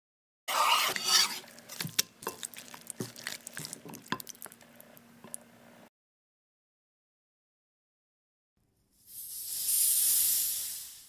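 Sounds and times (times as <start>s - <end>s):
knife slicing steak on wooden board: 0.5s - 1.9s.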